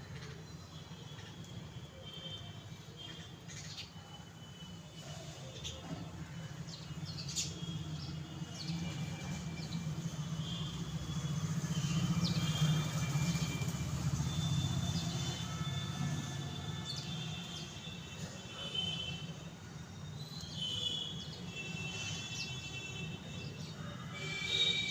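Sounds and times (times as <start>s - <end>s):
sparrows chirping: 3.0s - 19.2s, 20.1s - 24.8s
passing vehicle rumble: 9.3s - 16.4s.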